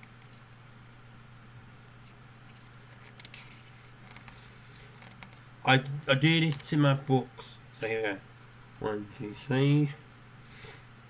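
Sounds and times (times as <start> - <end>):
low electrical hum: 0.0 - 11.0
paper booklet pages turning: 1.9 - 6.8
paper crackles and ticks: 2.4 - 5.4, 6.2 - 6.8.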